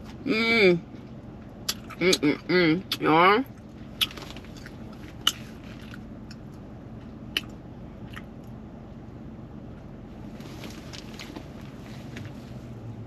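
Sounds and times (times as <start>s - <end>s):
person chewing food: 3.5s - 8.6s.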